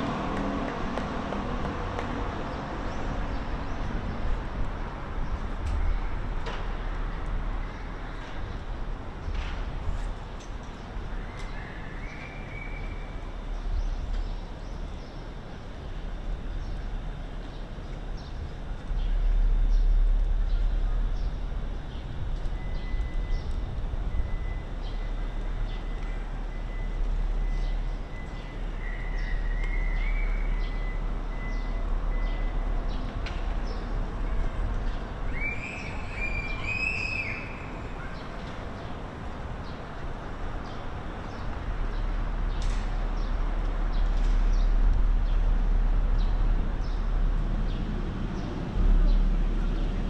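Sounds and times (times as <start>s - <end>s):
low rumble of traffic: 0.0s - 50.0s.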